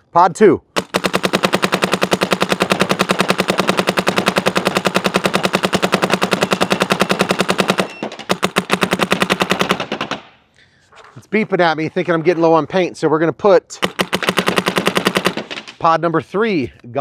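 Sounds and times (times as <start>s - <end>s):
paintball marker firing rapidly: 0.8s - 10.3s, 13.8s - 15.7s.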